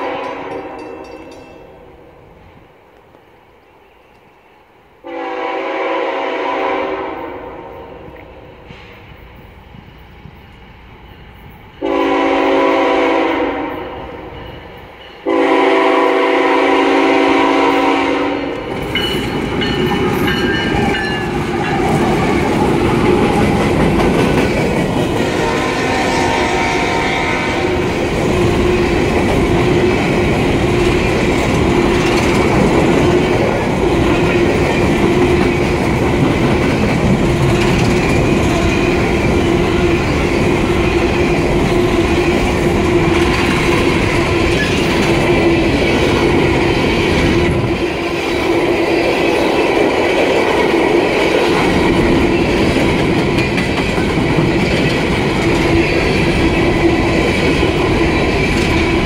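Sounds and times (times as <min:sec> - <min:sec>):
locomotive horn blasts: 0:00.0 - 0:00.8, 0:05.0 - 0:07.7, 0:11.8 - 0:14.0, 0:15.2 - 0:18.6, 0:25.2 - 0:27.9
train rumble: 0:05.0 - 0:59.0
wheels clacking over rail joints: 0:18.5 - 0:25.8, 0:27.8 - 0:59.0.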